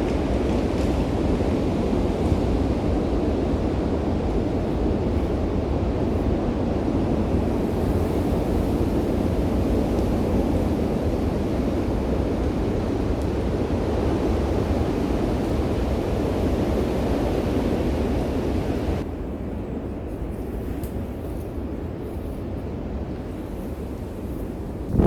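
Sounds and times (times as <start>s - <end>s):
wind buffeting on microphone: 24.7s - 25.0s
strong wind rushing: 24.8s - 25.0s.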